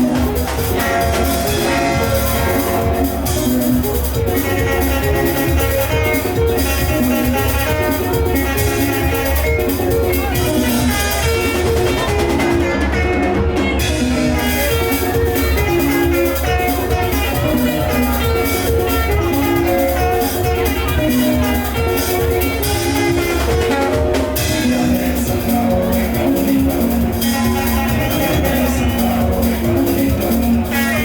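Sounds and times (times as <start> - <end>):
bass: 0.0 - 31.0
drum kit beat: 0.0 - 31.0
guitar melody: 0.0 - 31.0.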